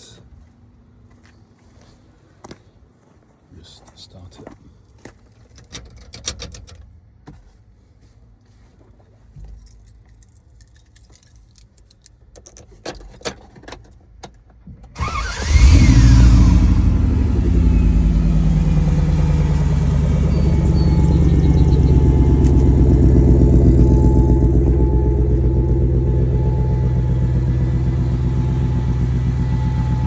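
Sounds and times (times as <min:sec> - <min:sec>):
car engine starting and idling: 0:15.0 - 0:30.0.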